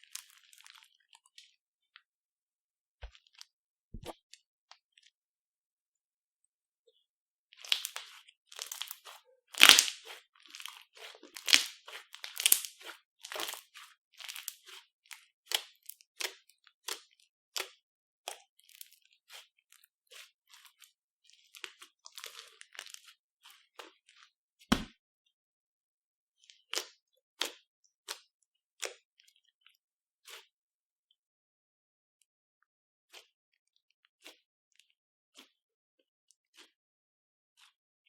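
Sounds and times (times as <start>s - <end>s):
slime squishing crackles: 7.6s - 14.8s.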